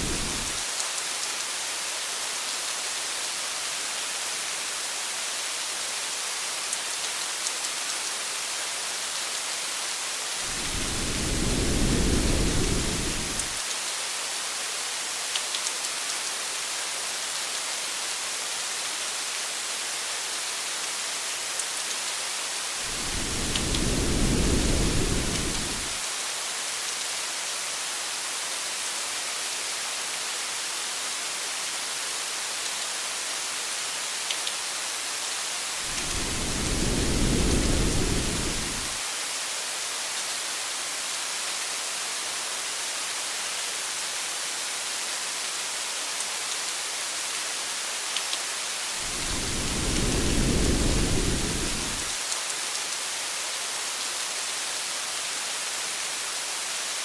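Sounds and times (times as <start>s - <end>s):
rain falling on a car: 0.0s - 1.2s, 10.4s - 13.7s, 22.8s - 26.0s, 35.8s - 39.0s, 49.0s - 52.7s
low rumbles of thunder: 10.5s - 13.6s, 22.9s - 25.9s, 35.9s - 39.0s, 49.0s - 52.1s.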